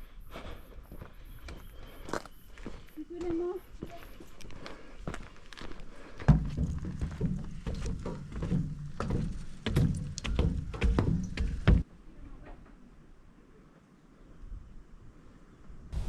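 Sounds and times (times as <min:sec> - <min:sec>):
footsteps on rocky trail: 0:00.0 - 0:11.9.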